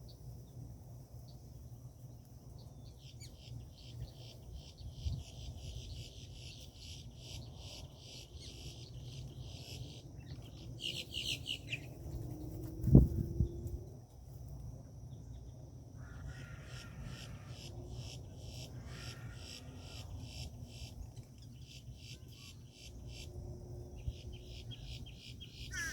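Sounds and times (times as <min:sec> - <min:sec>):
high insect drone: 0:00.0 - 0:25.9
birds chirping: 0:24.0 - 0:25.9.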